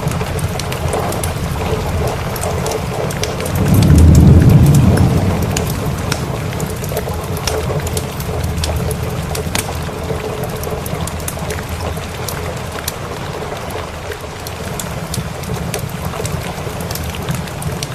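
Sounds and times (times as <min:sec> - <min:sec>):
steady rain: 0:00.0 - 0:17.9
wood fire crackling: 0:00.0 - 0:17.9
thunder rumble: 0:01.8 - 0:09.3.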